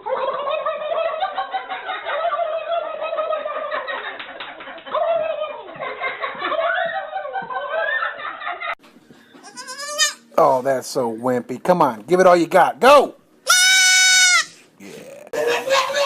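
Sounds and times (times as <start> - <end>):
person laughing high-pitched: 15.3 - 16.0.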